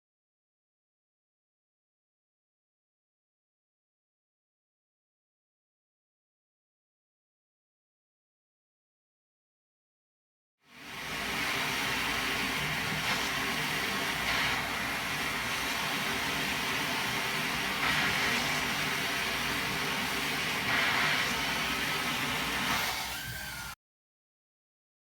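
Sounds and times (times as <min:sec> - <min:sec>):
vacuum air rushing into inlet: 0:10.8 - 0:23.8.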